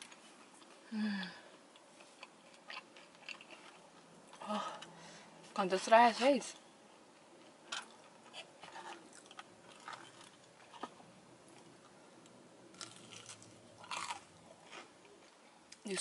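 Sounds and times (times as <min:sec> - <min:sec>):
person chewing crunchy food: 0:01.5 - 0:04.9, 0:07.4 - 0:11.9, 0:12.7 - 0:15.8.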